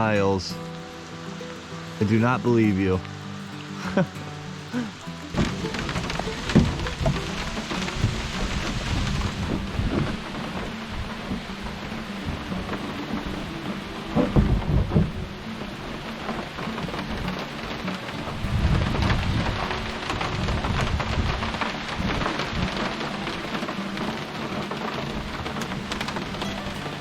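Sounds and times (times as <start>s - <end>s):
steady rain: 0.0s - 27.0s
low thumps and rumbling: 5.2s - 27.0s.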